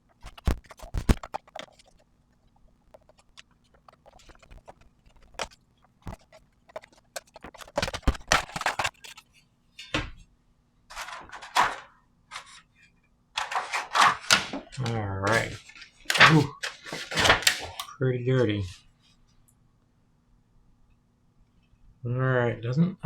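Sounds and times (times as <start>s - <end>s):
scraping and rattling: 0.0s - 10.0s, 10.9s - 12.6s, 13.4s - 17.8s
clicks and taps on metal case: 0.2s - 2.0s.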